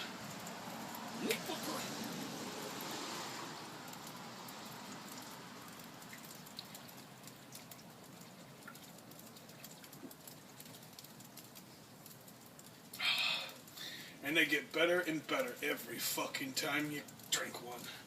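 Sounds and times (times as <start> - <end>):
rain hissing: 0.0 - 18.0
raindrop ticks: 0.0 - 18.0.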